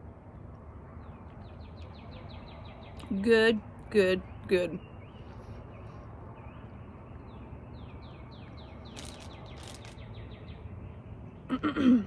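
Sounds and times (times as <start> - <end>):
low outdoor background: 0.0 - 12.0
songbird singing: 0.2 - 11.8
soft rustles: 8.9 - 10.0.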